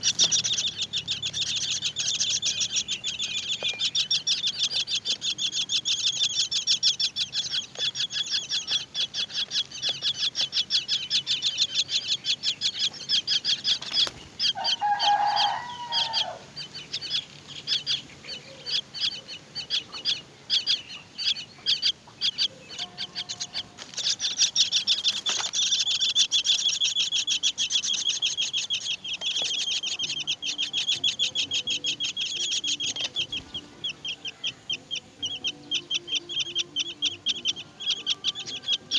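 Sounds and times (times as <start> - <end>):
nestlings begging chirps: 0.0 - 38.9
lower longer bird call: 14.6 - 16.5.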